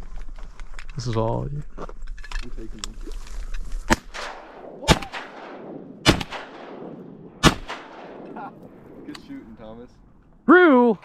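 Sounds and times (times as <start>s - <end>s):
shotgun shots with echo: 3.9s - 9.1s.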